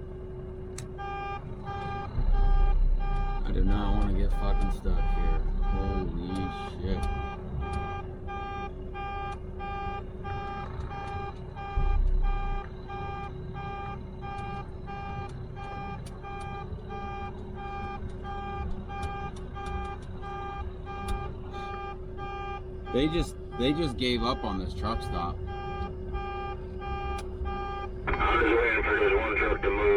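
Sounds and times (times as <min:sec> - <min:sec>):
idling engine rumble: 0:00.0 - 0:29.9
truck backup alarm beeping: 0:00.8 - 0:29.9
heavy low thump: 0:11.8 - 0:13.4.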